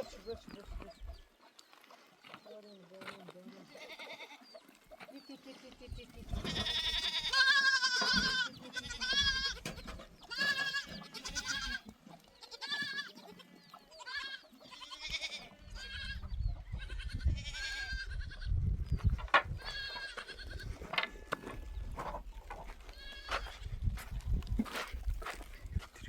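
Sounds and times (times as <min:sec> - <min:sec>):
goats bleating: 0:03.6 - 0:04.5, 0:06.3 - 0:09.7, 0:10.3 - 0:16.2, 0:16.8 - 0:18.5, 0:19.6 - 0:21.7, 0:22.8 - 0:23.6.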